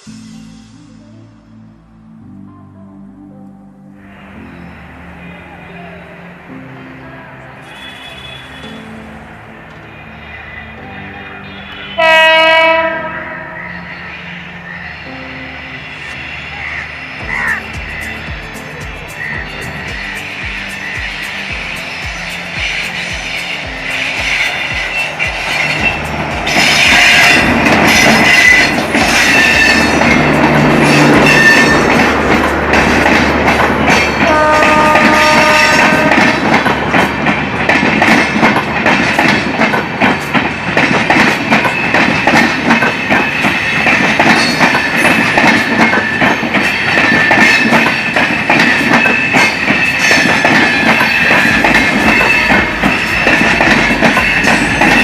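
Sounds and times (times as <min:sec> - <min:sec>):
train horn: 0:07.0 - 0:09.0, 0:10.8 - 0:18.2, 0:22.4 - 0:32.4, 0:33.8 - 0:36.9, 0:49.0 - 0:55.0
high-pitched brake squeal: 0:07.6 - 0:09.0, 0:22.3 - 0:30.2, 0:30.8 - 0:32.1, 0:48.9 - 0:55.0
train wheels clattering: 0:17.2 - 0:55.0.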